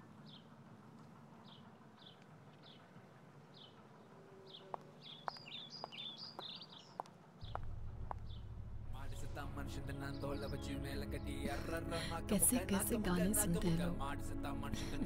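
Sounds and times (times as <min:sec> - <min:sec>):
bird warbling song: 0:04.4 - 0:08.5, 0:09.6 - 0:11.5
bird chirping downward: 0:04.4 - 0:11.4
low background rumble: 0:07.4 - 0:15.0.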